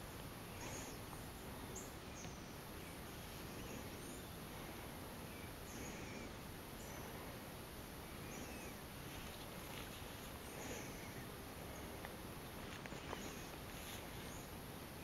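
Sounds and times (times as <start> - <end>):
outdoor ambient hiss: 0.0 - 15.0
faint high bird chirps: 8.2 - 9.5.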